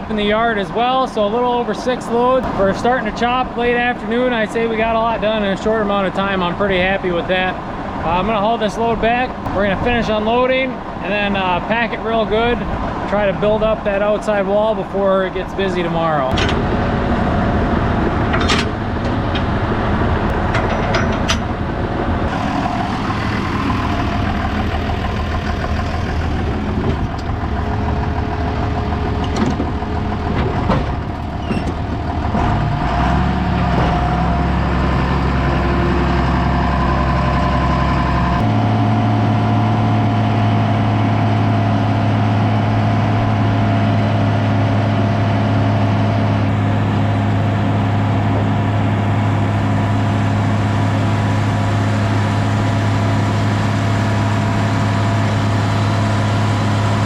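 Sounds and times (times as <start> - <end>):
tractor engine running: 16.2 - 57.0.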